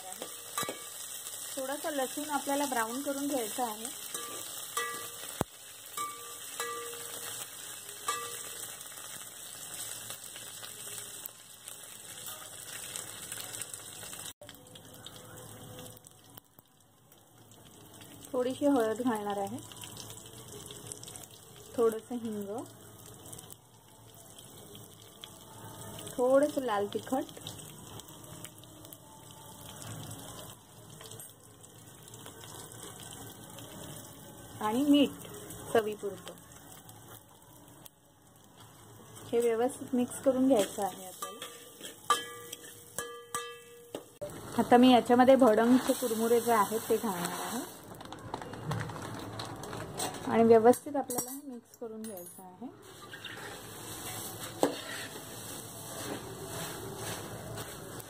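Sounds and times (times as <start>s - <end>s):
food sizzling in hot oil: 0.0s - 48.0s, 52.8s - 58.0s
ladle clinking against pot: 41.2s - 44.1s.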